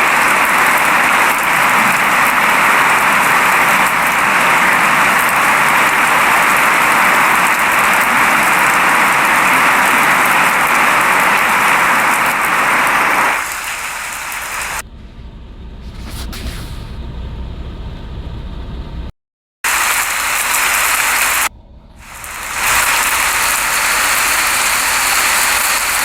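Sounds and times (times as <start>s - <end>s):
rain falling: 0.0s - 17.4s, 19.7s - 26.0s
low rumble: 13.4s - 19.1s, 20.4s - 26.0s.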